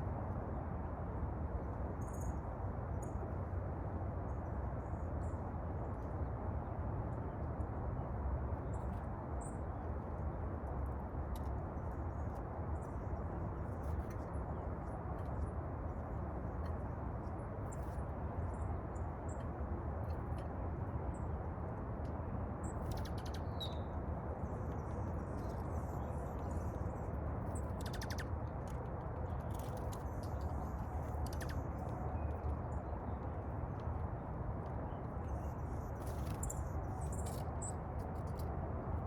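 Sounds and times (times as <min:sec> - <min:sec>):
low background noise: 0:00.0 - 0:39.0
small birds chirping: 0:22.6 - 0:38.4.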